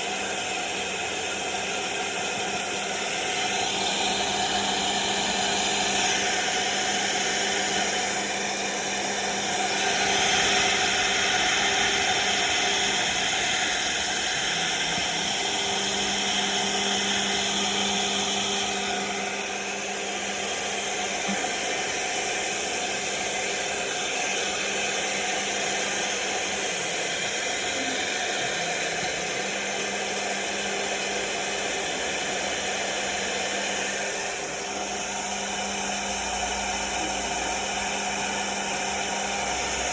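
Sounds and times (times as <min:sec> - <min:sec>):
machine spindle humming: 0:00.0 - 0:39.9
router bit cutting hiss: 0:00.0 - 0:39.9.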